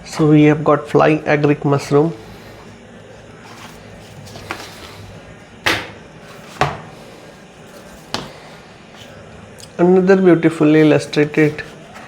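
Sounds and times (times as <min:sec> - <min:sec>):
book pages turning: 0:03.2 - 0:09.2, 0:10.7 - 0:12.0.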